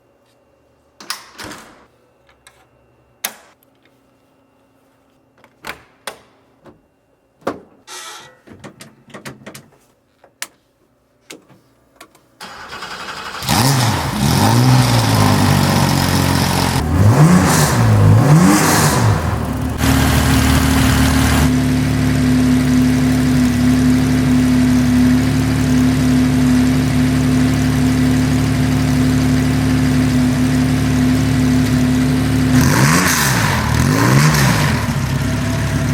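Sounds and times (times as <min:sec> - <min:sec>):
race car engine starting and revving: 0:12.4 - 0:35.9.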